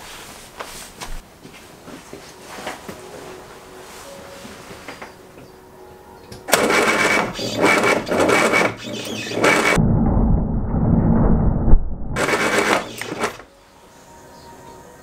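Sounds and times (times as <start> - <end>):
engine cranking on starter: 6.5 - 9.8, 12.2 - 13.5.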